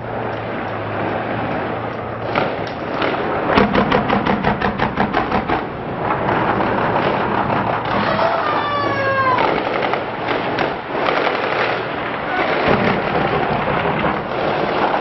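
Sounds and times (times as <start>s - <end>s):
automatic gunfire: 2.2s - 5.7s, 9.3s - 15.0s.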